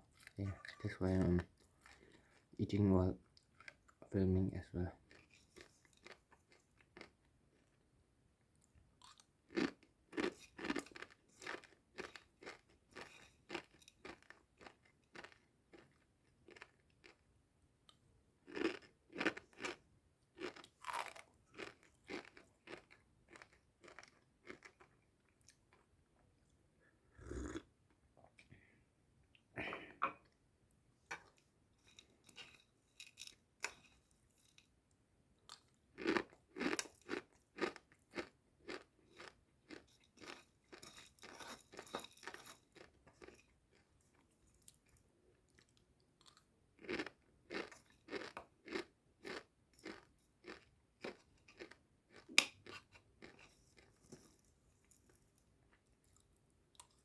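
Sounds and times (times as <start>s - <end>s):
crunchy chewing of dry noodles: 0.1s - 2.6s, 5.0s - 7.8s, 9.0s - 17.2s, 18.4s - 25.9s, 27.1s - 27.6s, 35.5s - 57.0s.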